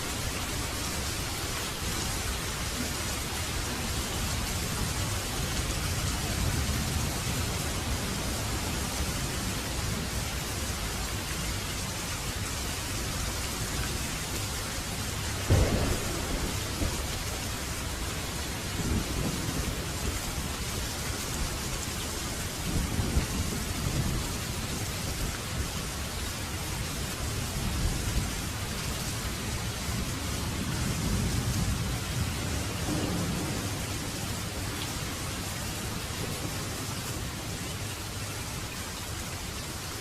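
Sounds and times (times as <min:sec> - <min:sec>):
steady rain: 0:00.0 - 0:40.0
thunder clap and rumbles: 0:15.5 - 0:21.5, 0:22.6 - 0:24.3, 0:30.0 - 0:37.4.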